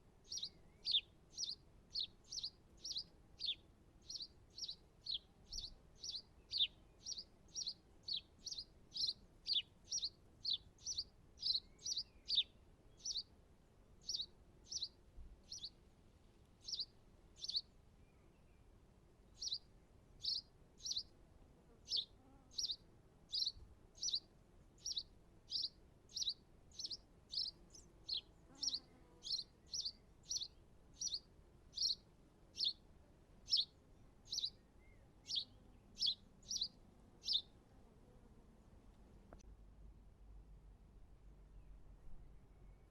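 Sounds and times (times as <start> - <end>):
bird chirping: 0.2 - 13.3, 14.0 - 15.8, 16.6 - 18.7, 19.3 - 21.1, 21.9 - 32.8, 33.4 - 37.6.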